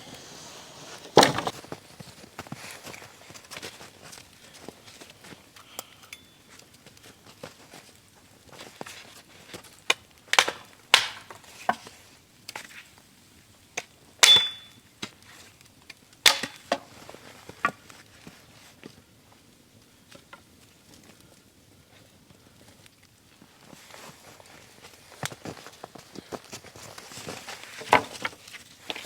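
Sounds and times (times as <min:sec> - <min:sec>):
sharp knocks and cracks: 0:09.9 - 0:11.9, 0:16.3 - 0:16.9.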